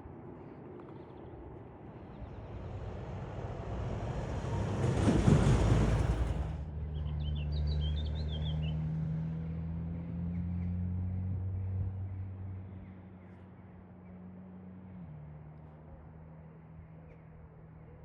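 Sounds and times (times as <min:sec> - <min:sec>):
train passing at speed: 0:02.2 - 0:07.0.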